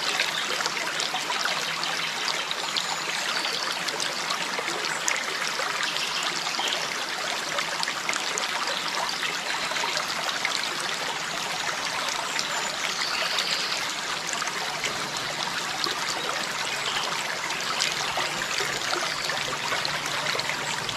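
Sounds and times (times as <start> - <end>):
water trickling and splashing: 0.0 - 20.9.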